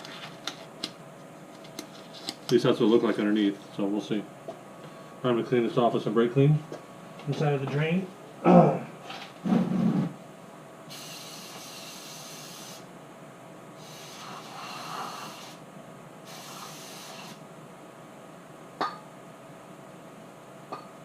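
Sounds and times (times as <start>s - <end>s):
aerosol spray hissing: 10.9s - 12.8s, 13.8s - 15.6s, 16.3s - 17.4s.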